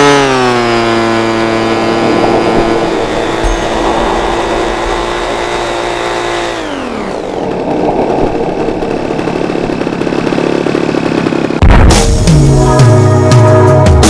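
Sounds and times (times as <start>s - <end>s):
model airplane engine: 0.0s - 11.6s.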